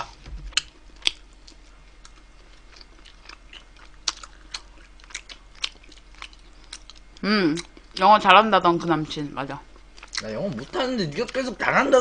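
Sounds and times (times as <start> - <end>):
chewing and biting: 0.5 - 8.0.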